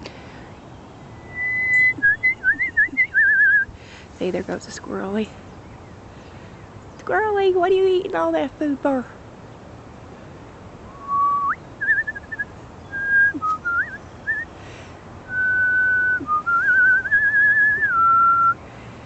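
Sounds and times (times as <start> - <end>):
person whistling bird calls: 1.2 - 3.7, 10.9 - 14.6, 15.3 - 18.6.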